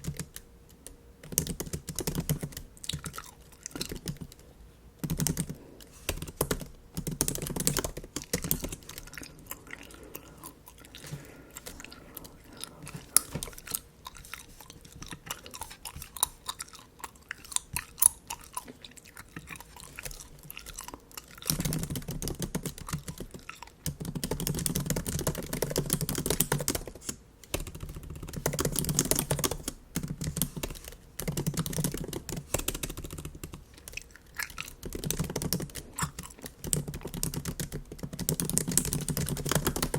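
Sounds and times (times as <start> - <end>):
typing on laptop keyboard: 0.0 - 4.4, 5.0 - 9.6, 19.6 - 39.9
gum chewing: 1.4 - 25.7, 28.4 - 39.9.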